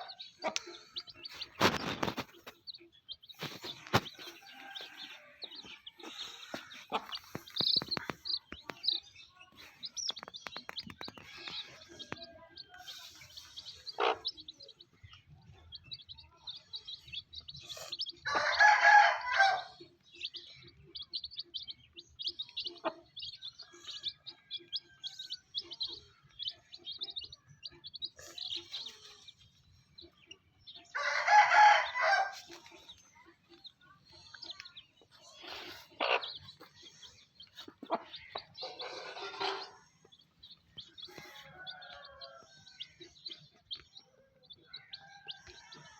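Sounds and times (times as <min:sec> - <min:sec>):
chicks peeping: 0:00.0 - 0:45.9
rooster crowing: 0:18.3 - 0:19.7, 0:31.0 - 0:32.3.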